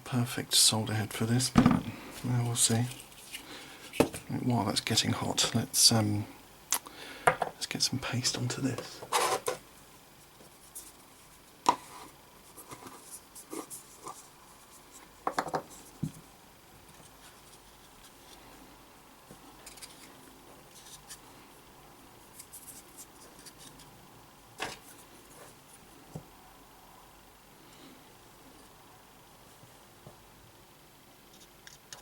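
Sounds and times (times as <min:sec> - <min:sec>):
tools clicking and tapping on workbench: 0:15.2 - 0:15.7.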